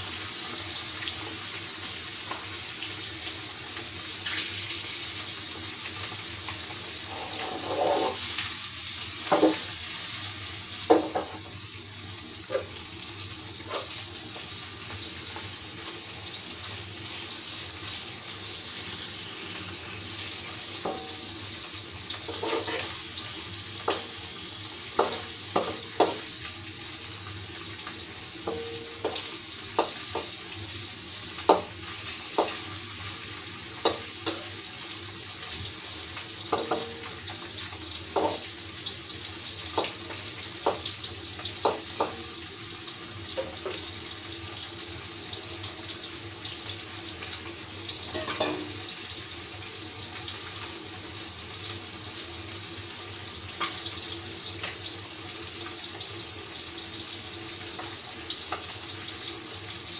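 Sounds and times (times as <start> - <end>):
fish sizzling in hot oil: 0.0 - 59.9
utensil clinking against pan: 48.1 - 48.8.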